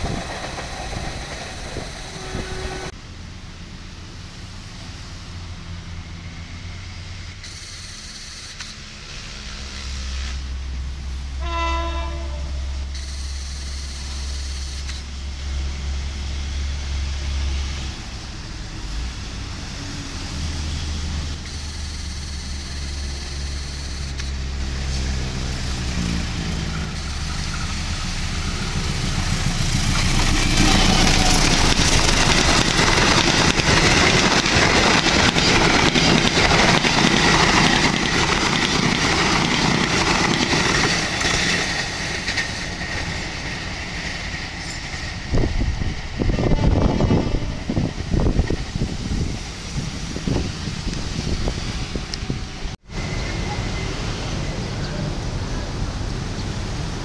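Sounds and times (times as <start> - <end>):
locomotive engine hum: 0.0 - 57.0
wheels clattering over rail joints: 26.0 - 45.7.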